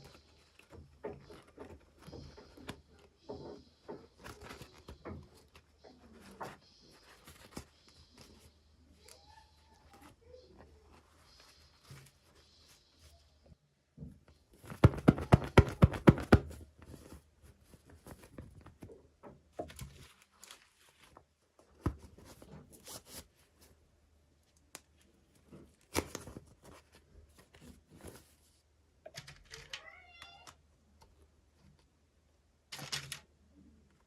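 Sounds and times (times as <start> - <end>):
packaging rustling and tapping: 0.0 - 8.4, 14.6 - 18.9
cat meowing: 29.6 - 30.6.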